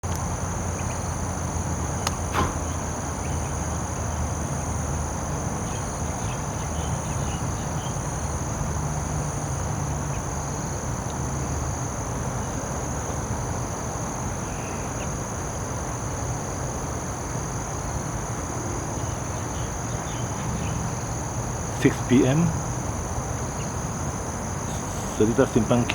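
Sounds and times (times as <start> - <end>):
crickets trilling: 0.0 - 25.9.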